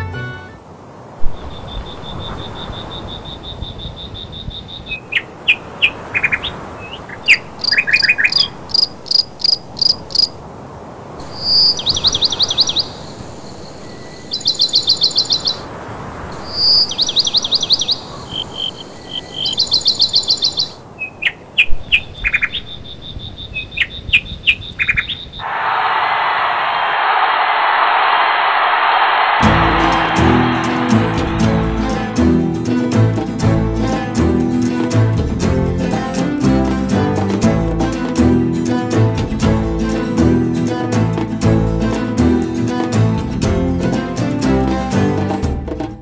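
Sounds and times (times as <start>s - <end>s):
birds chirping and trilling: 1.3s - 10.4s, 11.2s - 15.7s, 16.4s - 25.5s
steady background rush: 25.4s - 36.4s
thin high tone: 29.3s - 33.3s.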